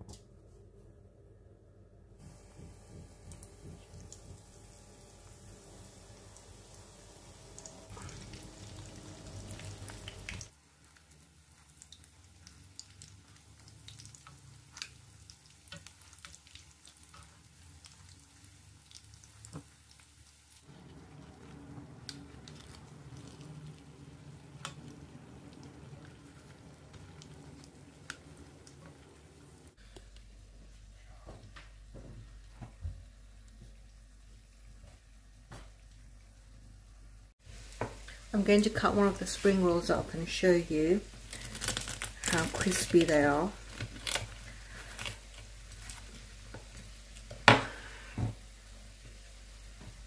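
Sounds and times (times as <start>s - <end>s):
food sizzling in hot oil: 4.0s - 29.8s, 37.4s - 44.5s.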